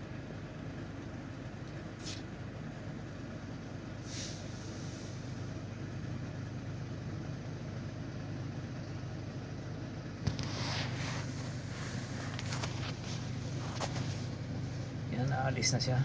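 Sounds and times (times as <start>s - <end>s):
train low hum: 0.0s - 16.0s
brief hiss: 4.1s - 5.3s.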